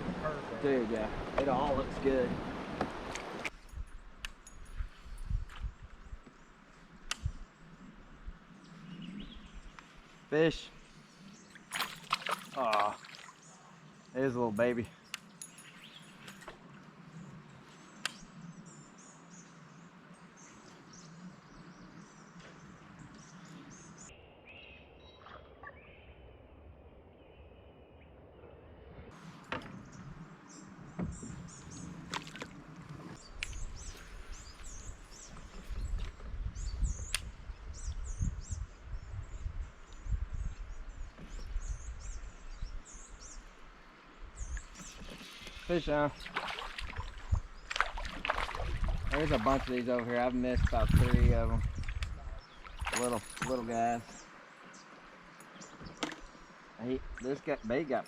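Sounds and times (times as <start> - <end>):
small birds chirping: 3.8 - 26.3, 29.2 - 58.0
creek ambience: 6.4 - 26.6, 29.1 - 37.4, 40.9 - 58.0
low rumbling bumps: 46.9 - 54.2.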